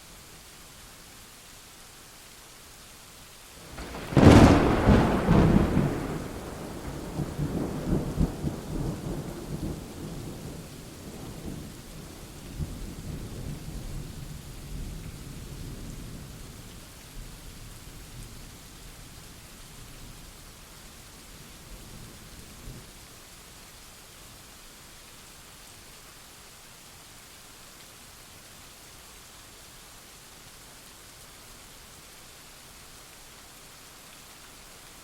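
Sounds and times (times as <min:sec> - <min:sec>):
steady rain: 0:00.0 - 0:35.0
thunderclap rumbling: 0:03.7 - 0:11.6.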